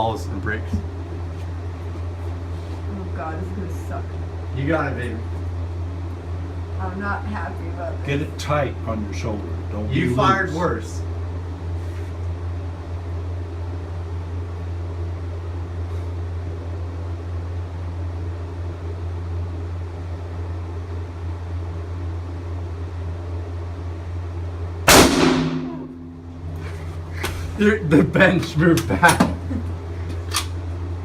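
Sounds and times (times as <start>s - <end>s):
low ventilation hum: 0.0s - 31.0s
rifle gunshot indoors: 24.9s - 26.2s.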